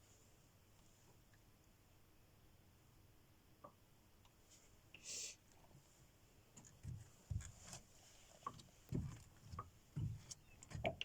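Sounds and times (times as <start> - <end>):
soft low knocks and bumps: 8.6 - 11.0.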